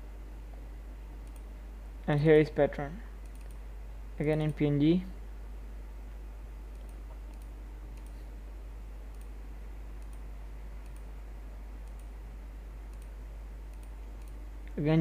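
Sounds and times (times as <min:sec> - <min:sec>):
low electrical hum: 0:00.0 - 0:15.0
computer mouse clicks: 0:01.2 - 0:01.5, 0:03.2 - 0:03.6, 0:06.7 - 0:08.2, 0:09.1 - 0:09.3, 0:10.0 - 0:11.1, 0:11.8 - 0:12.1, 0:12.9 - 0:14.4.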